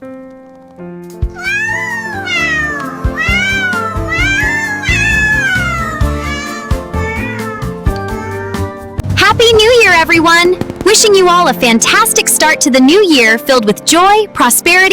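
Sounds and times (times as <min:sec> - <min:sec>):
cat meowing: 0:01.3 - 0:08.9.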